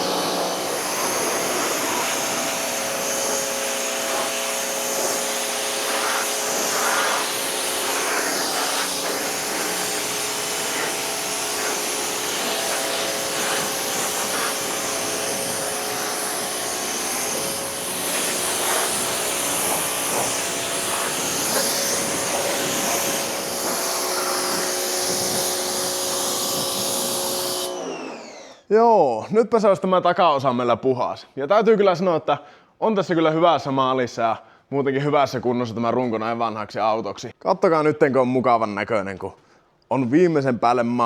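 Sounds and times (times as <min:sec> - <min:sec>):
pressure washer running: 0:00.0 - 0:28.6.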